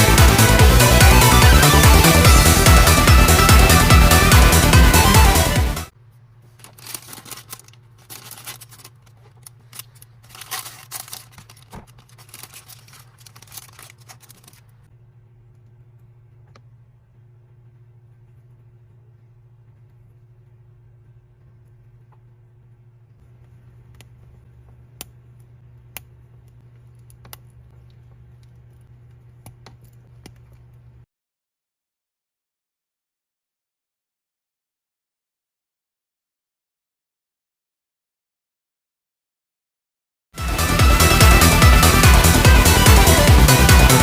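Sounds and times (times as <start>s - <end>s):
low electrical hum: 5.9s - 31.1s
plastic pieces rustling and clicking: 6.5s - 14.8s.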